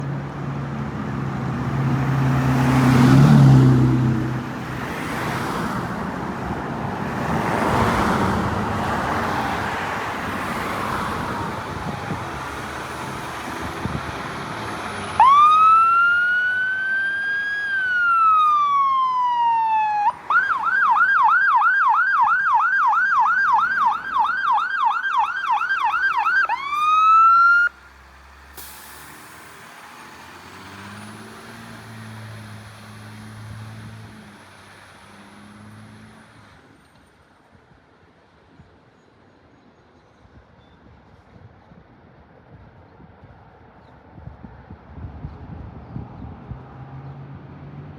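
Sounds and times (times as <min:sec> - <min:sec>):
vehicle engine and road noise: 0:00.0 - 0:47.9
fire engine siren wailing: 0:11.1 - 0:27.8.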